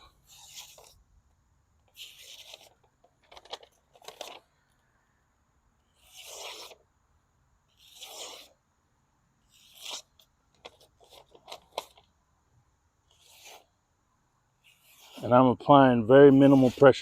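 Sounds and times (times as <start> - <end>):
knife slicing through material: 0.2 - 1.0, 5.9 - 6.8, 7.7 - 8.6, 9.5 - 10.2, 13.1 - 13.7, 14.6 - 15.3, 16.3 - 16.9.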